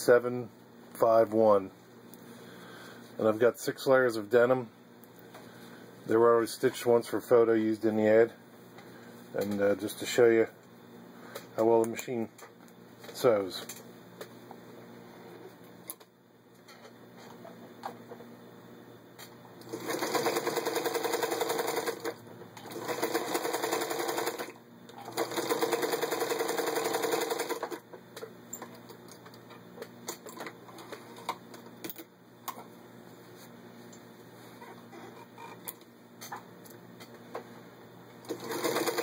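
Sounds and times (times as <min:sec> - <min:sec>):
sewing machine stitching: 0:19.6 - 0:27.8, 0:38.3 - 0:39.0.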